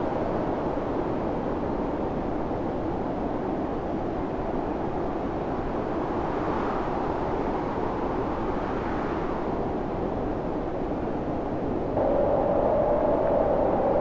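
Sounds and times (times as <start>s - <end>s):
storm wind howling: 11.7s - 14.0s.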